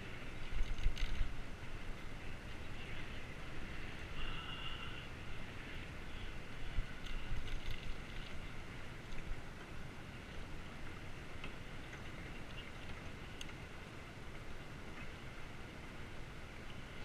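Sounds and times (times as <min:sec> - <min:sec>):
bicycle clicks and rattles: 0:00.4 - 0:01.4, 0:07.0 - 0:08.4.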